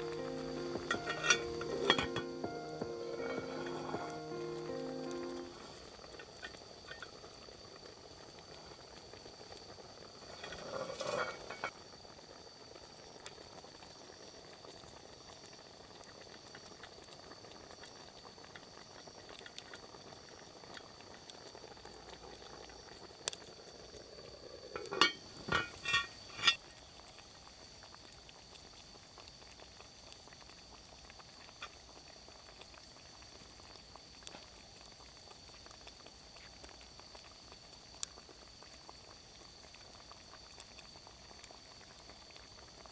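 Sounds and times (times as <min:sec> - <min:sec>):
pot simmering hiss: 0:00.0 - 0:42.9
ringing metal clinks: 0:00.8 - 0:02.3
metal clank: 0:00.8 - 0:04.1, 0:10.4 - 0:11.7, 0:24.8 - 0:26.6.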